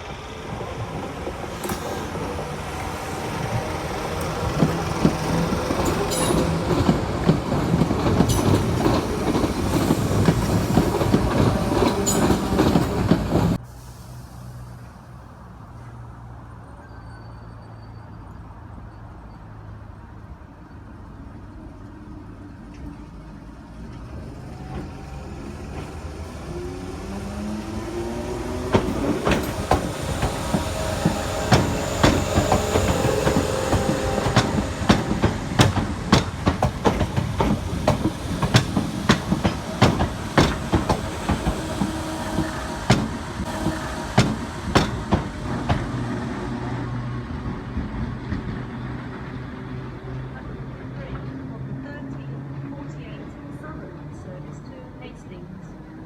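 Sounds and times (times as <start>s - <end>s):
train whine: 0.0s - 15.8s, 22.5s - 56.0s
train wheels clacking over rail joints: 0.1s - 13.6s, 24.0s - 46.4s.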